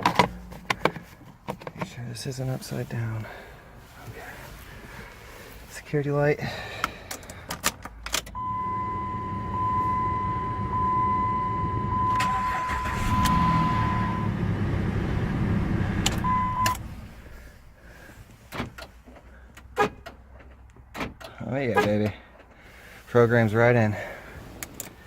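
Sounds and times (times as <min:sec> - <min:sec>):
car engine starting and running: 0:06.8 - 0:21.4
high electronic chime tone: 0:08.4 - 0:14.4.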